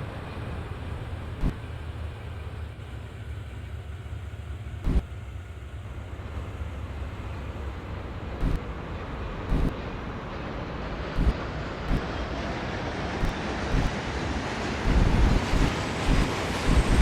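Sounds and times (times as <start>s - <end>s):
car road and wind noise: 0.0s - 17.0s
low rumble: 11.1s - 12.1s, 13.1s - 14.1s, 14.7s - 17.0s.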